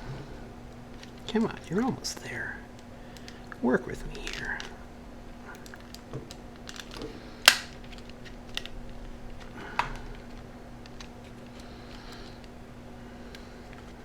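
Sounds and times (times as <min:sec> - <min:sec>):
plastic case clicks and taps: 0:07.5 - 0:07.7.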